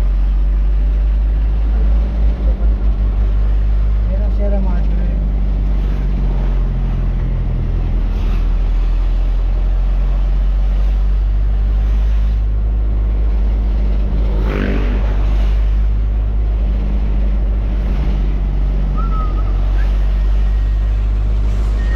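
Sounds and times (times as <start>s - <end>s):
road noise: 0.0s - 21.9s
truck engine drone: 0.0s - 21.9s.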